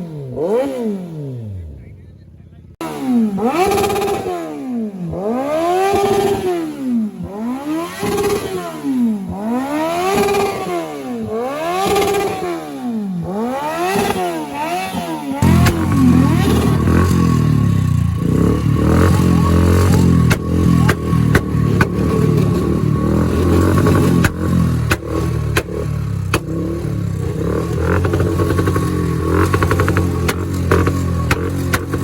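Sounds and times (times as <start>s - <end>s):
motorcycle engine running: 0.0s - 32.0s
sharp clicks and knocks: 20.2s - 22.8s, 23.5s - 26.6s, 27.6s - 32.0s.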